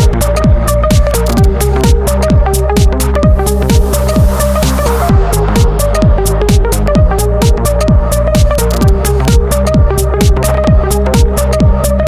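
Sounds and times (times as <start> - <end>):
kick drum: 0.0 - 12.0
hi-hat strokes: 3.2 - 6.9
synth melody: 3.3 - 6.4.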